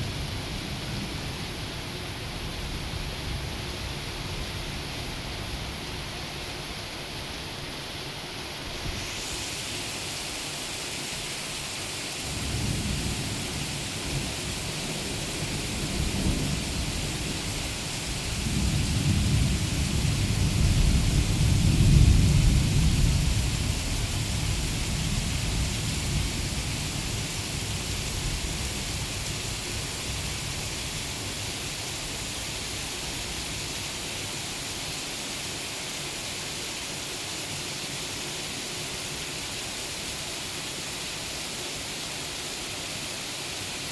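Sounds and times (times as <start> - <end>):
steady rain falling: 0.0 - 43.9
rolling thunder: 18.3 - 26.6.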